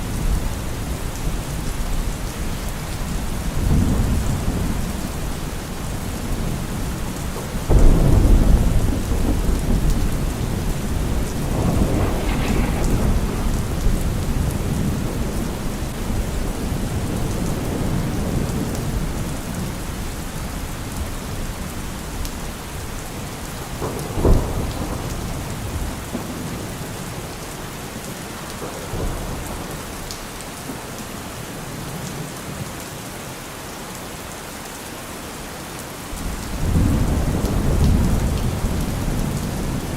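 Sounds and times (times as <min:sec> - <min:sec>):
rolling thunder: 0:00.0 - 0:20.1, 0:22.7 - 0:27.4, 0:36.2 - 0:39.9
steady rain: 0:00.0 - 0:39.9.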